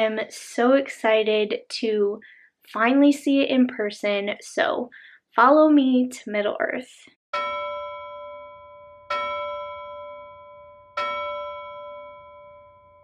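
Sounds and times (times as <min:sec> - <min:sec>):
bell chime ringing: 0:07.3 - 0:13.0.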